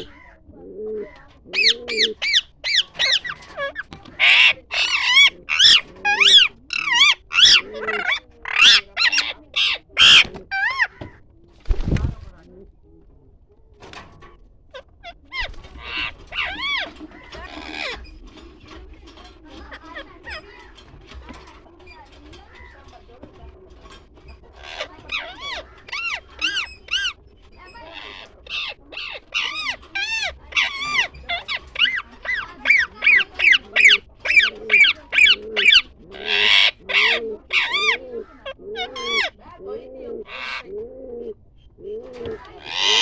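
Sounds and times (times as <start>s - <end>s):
bird harsh screeches: 1.6s - 11.2s, 24.5s - 39.4s, 42.6s - 43.0s.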